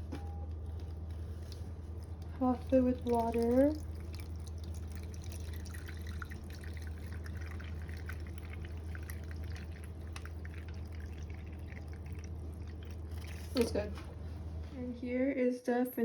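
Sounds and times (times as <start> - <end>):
low hum: 0.0 - 15.1
water trickling into a pan: 1.3 - 13.9.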